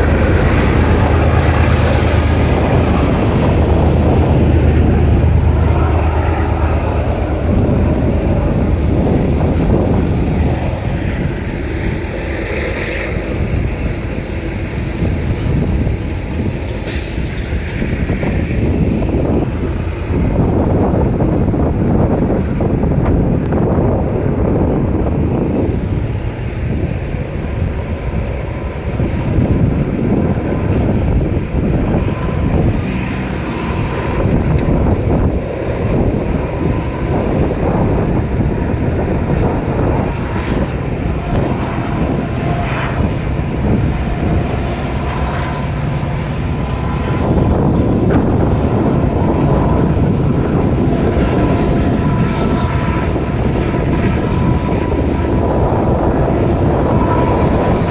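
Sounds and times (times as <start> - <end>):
freight train rumbling on rails: 0.0 - 57.9.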